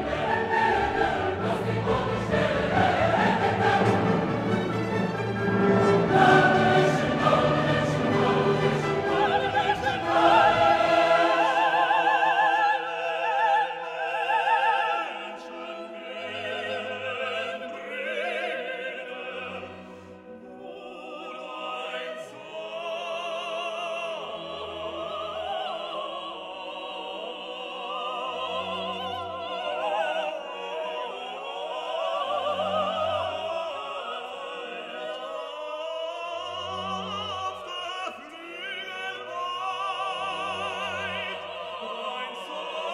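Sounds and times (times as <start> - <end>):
orchestral accompaniment: 0.0 - 14.1
operatic singing with vibrato: 0.0 - 42.9.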